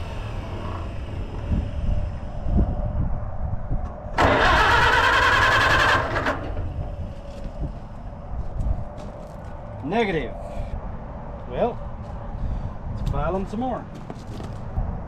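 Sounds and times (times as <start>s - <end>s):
tractor engine cranking: 4.1s - 7.2s.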